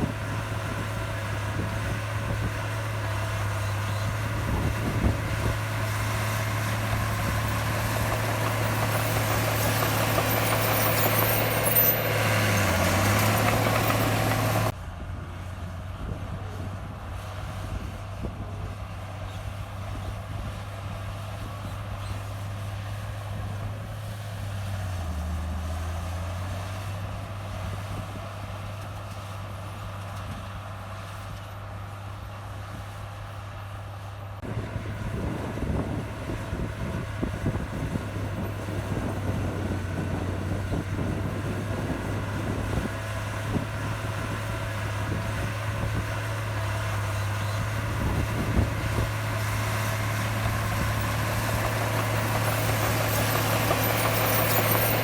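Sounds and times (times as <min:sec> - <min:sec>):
heavy diesel engine running: 0:00.0 - 0:55.0
rough crackling rattle: 0:05.2 - 0:14.7, 0:49.0 - 0:55.0.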